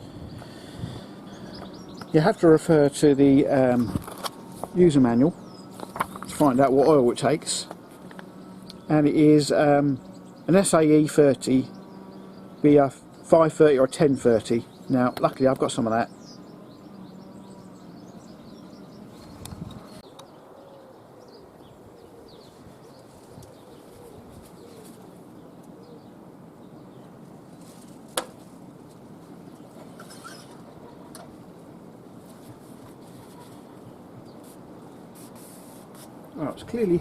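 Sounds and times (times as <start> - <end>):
birds chirping faintly: 0.0 - 37.0.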